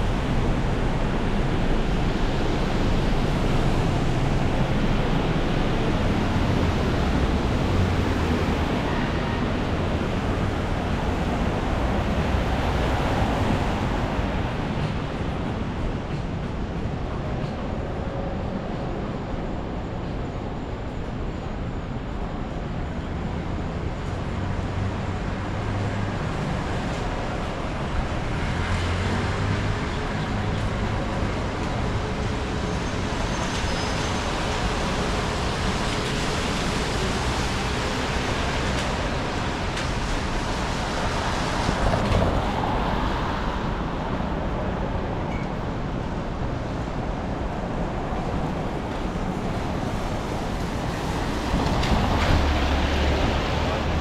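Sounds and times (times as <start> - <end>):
city street traffic: 0.0 - 54.0.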